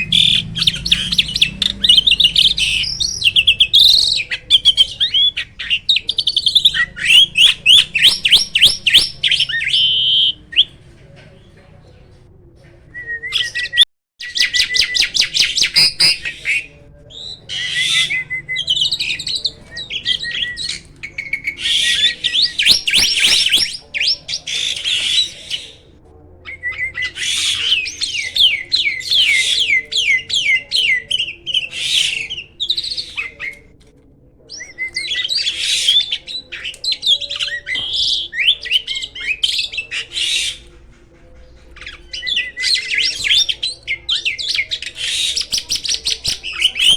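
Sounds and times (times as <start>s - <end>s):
starling warbling song: 0.0s - 10.9s, 13.4s - 25.8s.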